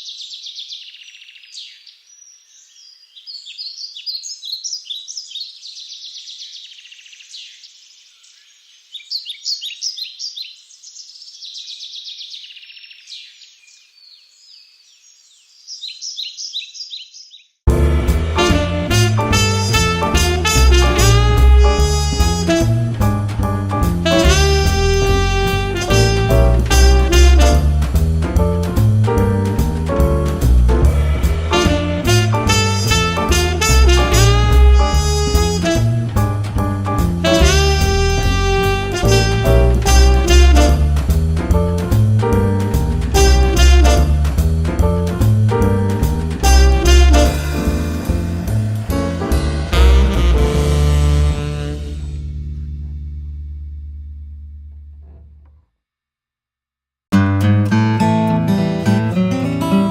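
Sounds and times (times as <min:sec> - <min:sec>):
songbirds chirping and trilling: 0:00.0 - 0:17.6
upbeat swing jazz: 0:17.7 - 0:53.3
music: 0:17.7 - 0:55.4, 0:57.1 - 0:59.9.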